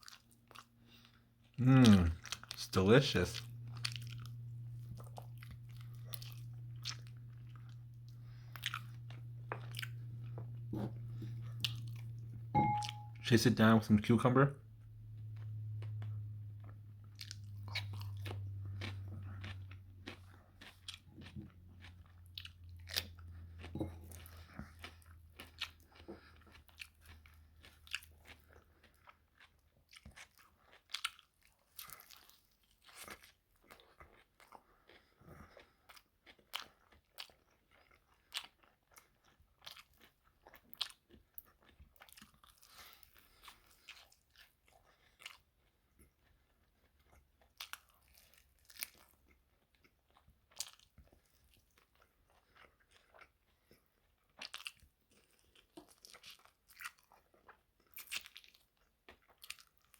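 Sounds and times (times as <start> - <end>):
crunchy chewing: 0.0 - 13.1, 15.0 - 59.9
low hum: 3.3 - 19.9.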